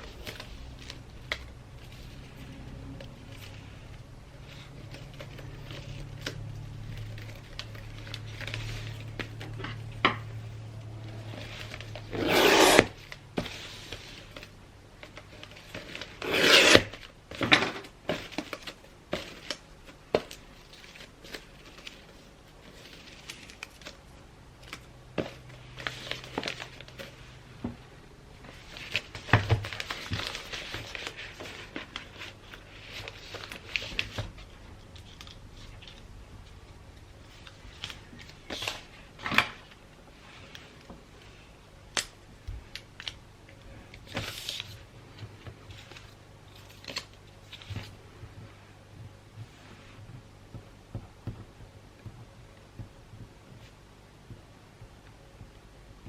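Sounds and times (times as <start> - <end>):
wrapping paper rustling: 0.0 - 17.2, 18.0 - 27.4, 28.4 - 41.5
paper crinkling: 28.4 - 39.5.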